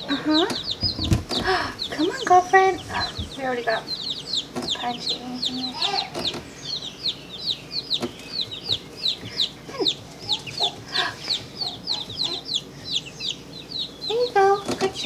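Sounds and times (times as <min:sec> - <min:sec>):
baby chicks peeping: 0:00.0 - 0:15.0.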